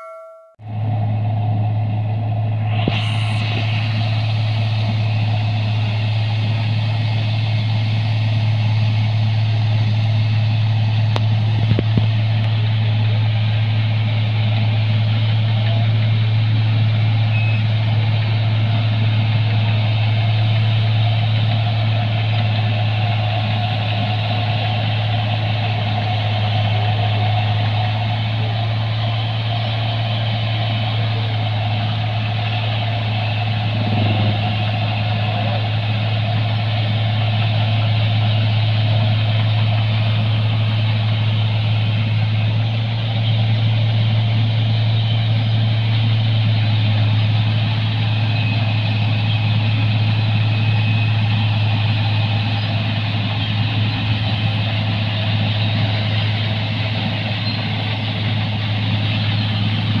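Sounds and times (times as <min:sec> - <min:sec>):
combine harvester running: 0:00.0 - 1:00.0.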